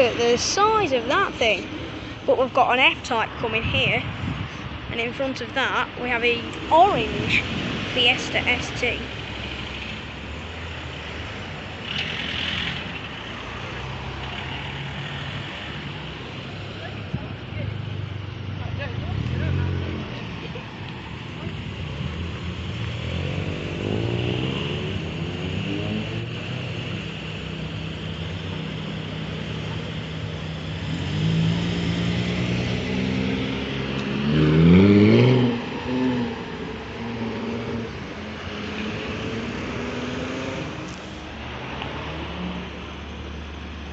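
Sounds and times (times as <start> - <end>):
car engines running: 0.0 - 43.9
car engine revving hard: 22.2 - 27.0, 30.6 - 40.9.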